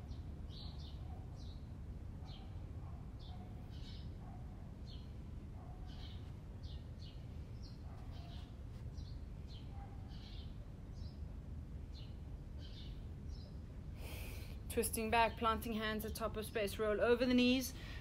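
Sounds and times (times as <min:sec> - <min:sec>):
small birds chirping: 0:00.0 - 0:11.3, 0:11.9 - 0:18.0.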